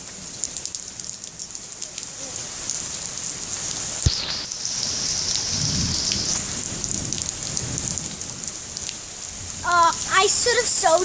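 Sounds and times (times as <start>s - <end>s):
heavy rain pouring: 0.0s - 11.0s
raindrops ticking: 4.0s - 11.0s.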